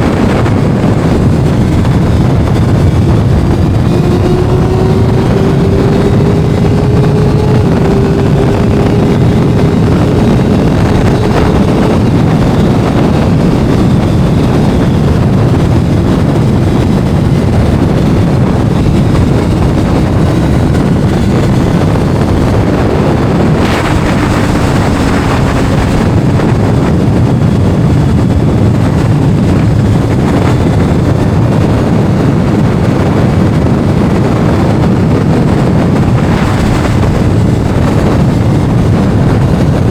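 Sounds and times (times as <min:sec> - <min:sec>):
engine note sliding down: 0:00.0 - 0:27.1
motorcycle engine: 0:00.0 - 0:39.9
wind buffeting microphone: 0:00.0 - 0:39.9.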